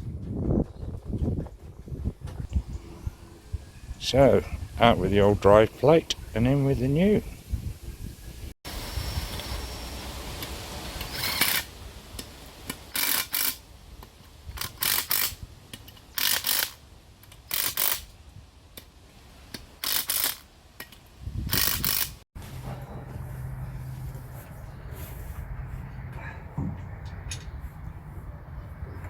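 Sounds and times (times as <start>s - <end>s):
ratchet spanner clicking: 14.6s - 18.0s, 19.8s - 22.2s.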